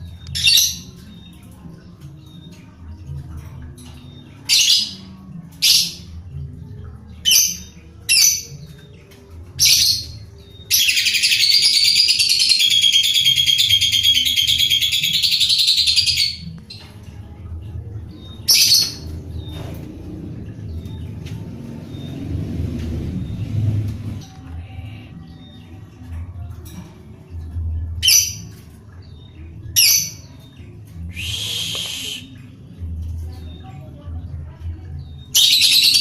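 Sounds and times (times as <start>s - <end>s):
lovebird calling: 31.1s - 32.3s.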